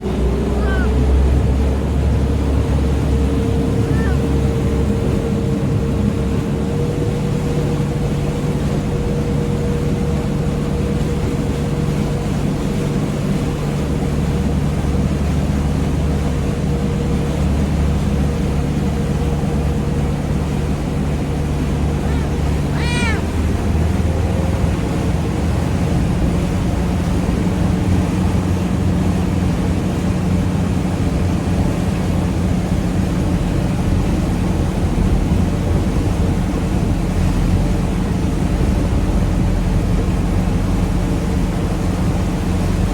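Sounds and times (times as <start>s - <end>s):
ferry engine drone: 0.0s - 42.9s
cat meowing: 0.6s - 0.9s, 3.8s - 4.3s, 22.0s - 23.6s.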